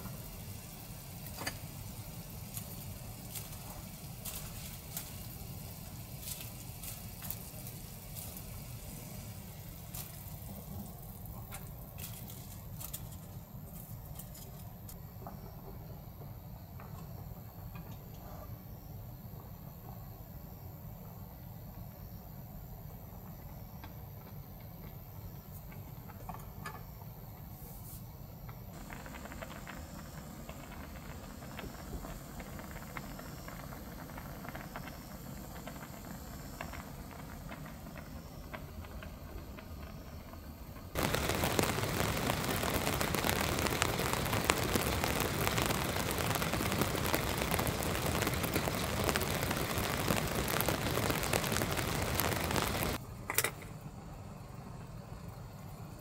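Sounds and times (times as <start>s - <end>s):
dense crackling rain hiss: 0.0s - 53.1s, 53.7s - 56.0s
raindrop ticks: 28.8s - 39.1s, 41.0s - 53.0s
wind rumble: 41.0s - 53.0s.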